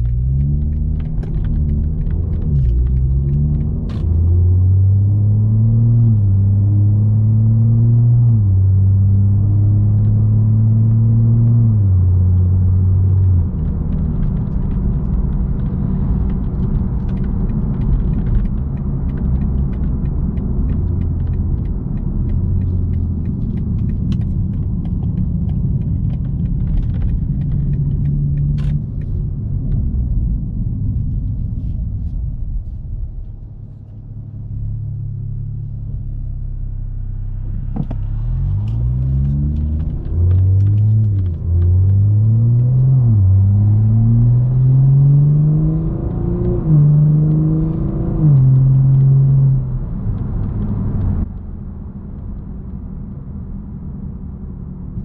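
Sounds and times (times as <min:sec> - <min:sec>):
car exhaust revving through upshifts: 0:00.0 - 0:29.2, 0:37.3 - 0:51.3.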